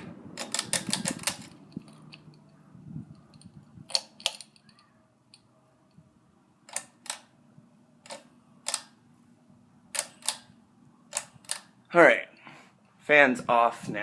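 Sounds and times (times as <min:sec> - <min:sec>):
pull-chain switch clicking: 0:00.4 - 0:02.5, 0:03.1 - 0:06.0, 0:06.7 - 0:07.3, 0:08.0 - 0:09.0, 0:09.9 - 0:10.5, 0:11.1 - 0:11.7.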